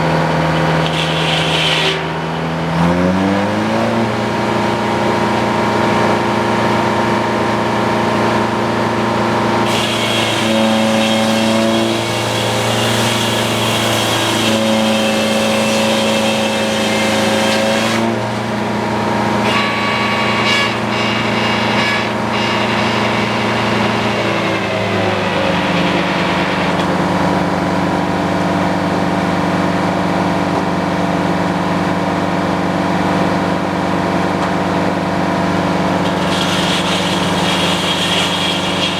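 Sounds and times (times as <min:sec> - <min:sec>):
sawmill engine running: 0:00.0 - 0:38.9
saw blade cutting log: 0:00.5 - 0:04.0, 0:09.6 - 0:28.2, 0:35.9 - 0:38.9.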